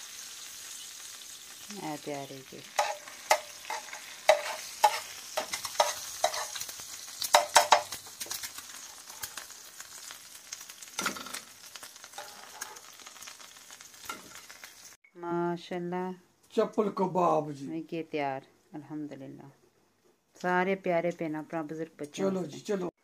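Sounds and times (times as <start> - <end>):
oil sizzling: 0.0 - 15.0
metal spatula scraping griddle: 2.7 - 6.7, 12.1 - 13.0.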